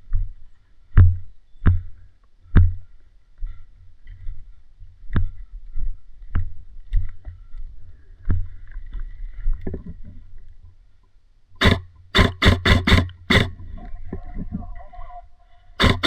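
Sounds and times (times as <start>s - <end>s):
airsoft guns firing: 11.6s - 13.5s, 15.8s - 16.0s
footsteps: 11.6s - 13.5s, 15.8s - 16.0s
gear knocking against camera: 11.6s - 13.6s, 15.8s - 16.0s.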